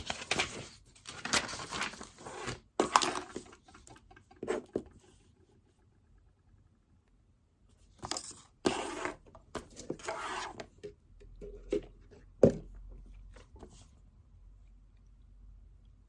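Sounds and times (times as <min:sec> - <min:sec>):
paper rustling and scraping: 0:00.0 - 0:03.8, 0:08.0 - 0:10.8.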